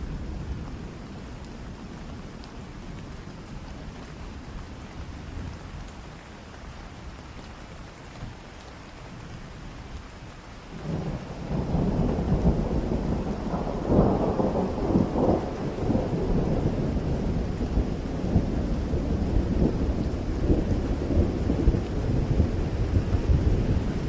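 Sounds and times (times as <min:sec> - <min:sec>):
rain falling: 0:00.0 - 0:24.0
rolling thunder rumble: 0:10.7 - 0:24.0.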